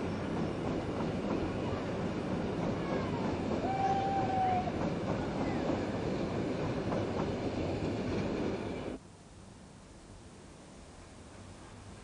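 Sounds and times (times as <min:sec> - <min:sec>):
train running on track: 0:00.0 - 0:09.0.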